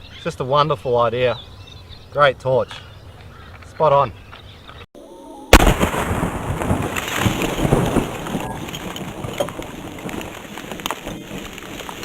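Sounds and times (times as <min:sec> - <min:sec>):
rifle shot: 0:05.6 - 0:06.2
ice fragments raining down: 0:05.6 - 0:12.0.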